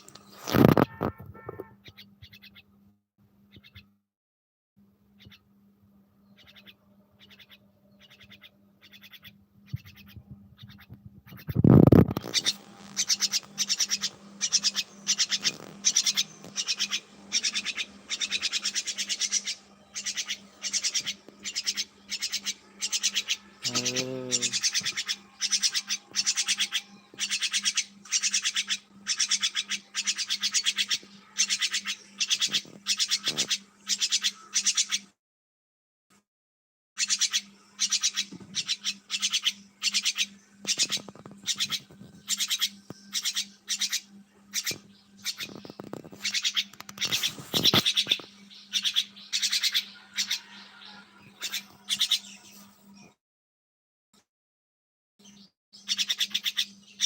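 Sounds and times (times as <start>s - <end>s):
birds calling in raspy bursts: 6.4s - 35.1s, 37.0s - 52.7s, 55.8s - 57.0s
low bird call: 12.1s - 35.0s.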